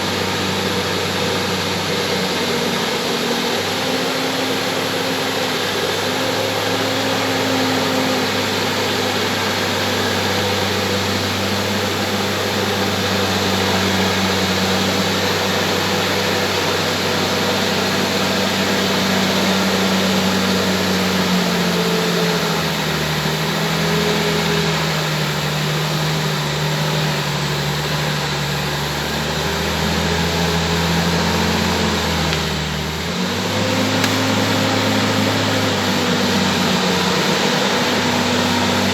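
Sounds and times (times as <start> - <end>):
bulldozer diesel engine: 0.0 - 38.9.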